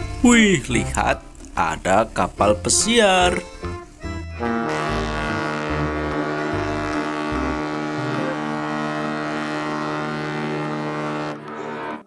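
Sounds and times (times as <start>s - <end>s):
ship's horn blast: 4.3s - 12.0s.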